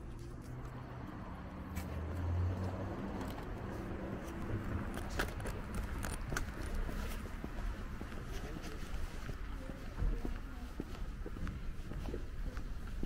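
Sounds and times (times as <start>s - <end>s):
sharp clicks and rattles: 4.6s - 6.9s.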